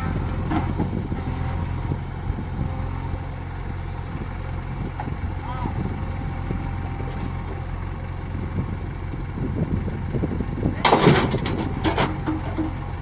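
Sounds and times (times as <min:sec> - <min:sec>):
backhoe diesel engine running: 0:00.0 - 0:13.0
stone crashing into trailer: 0:10.8 - 0:12.5.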